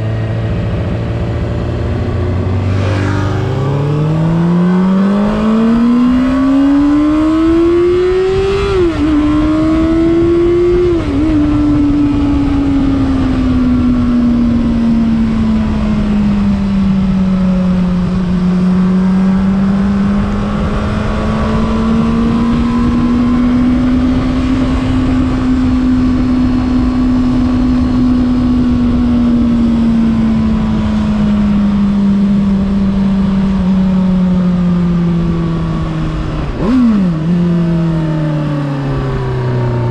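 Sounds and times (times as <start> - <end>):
motorcycle engine revving: 0.0 - 39.9
rushing noise: 2.4 - 4.5.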